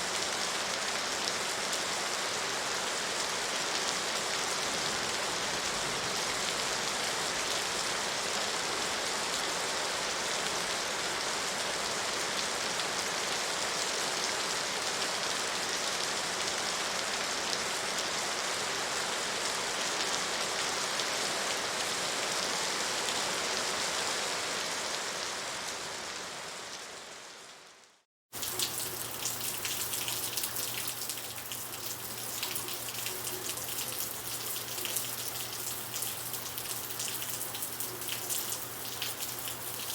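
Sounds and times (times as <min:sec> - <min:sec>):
steady rain: 0:00.0 - 0:39.9
raindrops pattering: 0:28.4 - 0:39.9.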